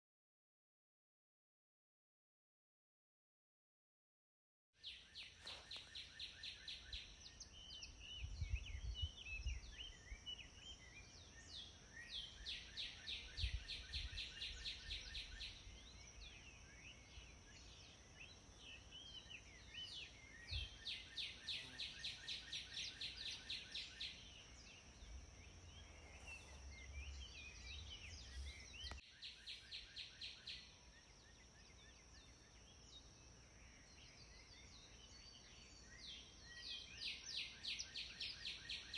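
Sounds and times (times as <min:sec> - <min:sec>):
scattered bird chirps: 0:04.8 - 0:32.8
bird song rapid chirping: 0:04.8 - 0:38.9.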